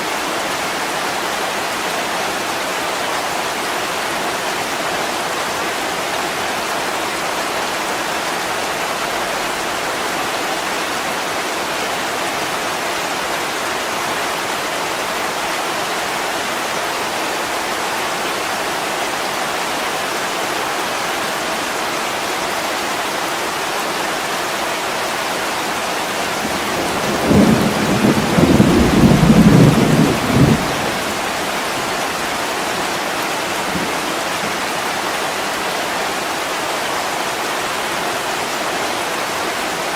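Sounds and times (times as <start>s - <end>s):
heavy rain on a window: 0.0s - 39.9s
low rumble of thunder: 26.6s - 31.4s.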